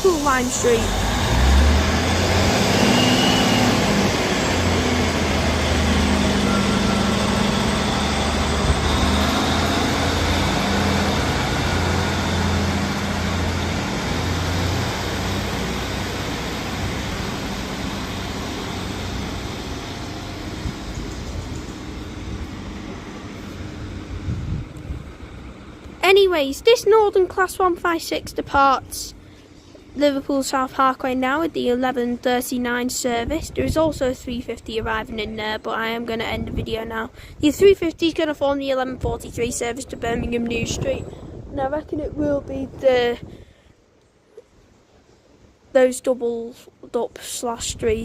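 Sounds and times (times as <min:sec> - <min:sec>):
diesel train pulling away: 0:00.0 - 0:27.8.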